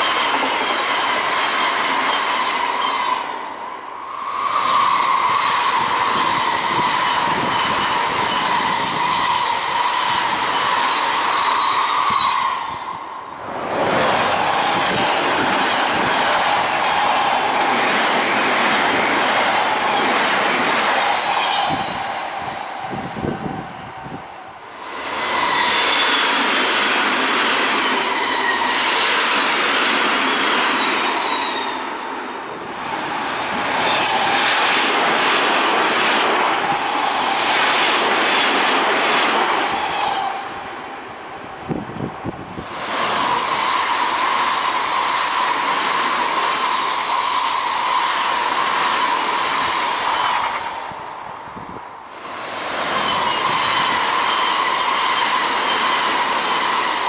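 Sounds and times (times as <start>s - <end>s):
wheels clacking over rail joints: 0.0s - 3.4s
train high whine: 0.0s - 57.0s.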